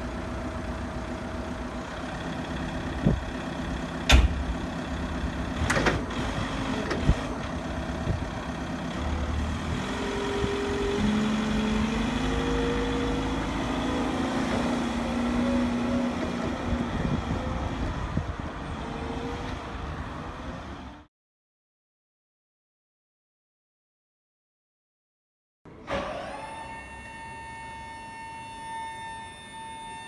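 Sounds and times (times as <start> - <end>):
truck engine running: 0.0 - 18.8.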